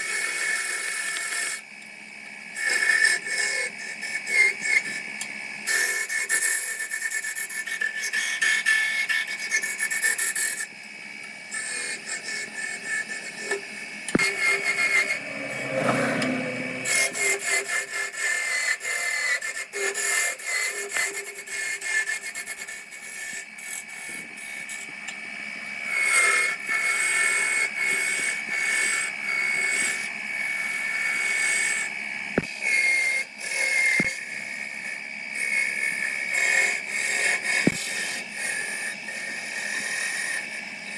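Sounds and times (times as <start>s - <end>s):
tool scraping wood: 11.5s - 24.9s, 32.4s - 40.4s
high whine: 14.1s - 17.5s.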